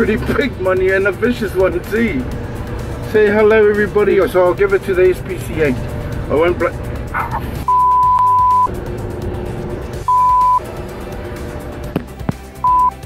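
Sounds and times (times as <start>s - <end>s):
background music: 0.0s - 13.0s
high-pitched censor bleeps: 7.7s - 8.7s, 10.1s - 10.6s, 12.6s - 13.0s.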